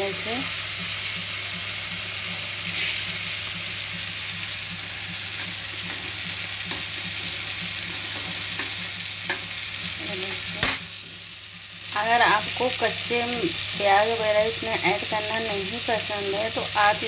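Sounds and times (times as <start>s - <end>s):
gourds sizzling in oil: 0.0s - 17.0s
tongs clicking on pan: 5.1s - 9.5s.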